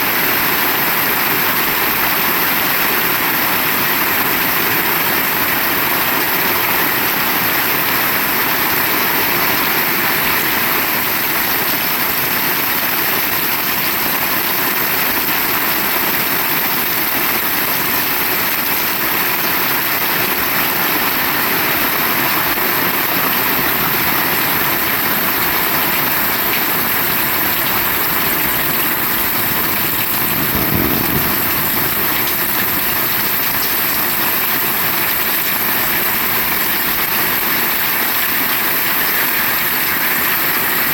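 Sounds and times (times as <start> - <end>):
heavy rain falling: 0.0 - 40.9
low gust of wind: 28.6 - 33.3.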